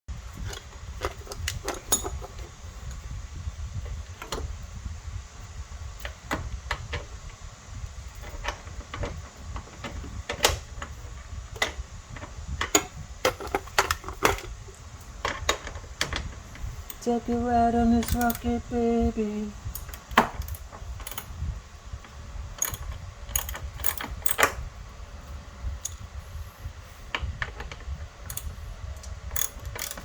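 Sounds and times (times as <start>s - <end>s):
steady low rumble: 0.1s - 30.0s
irregular clicks and knocks: 8.1s - 17.4s, 22.0s - 24.6s.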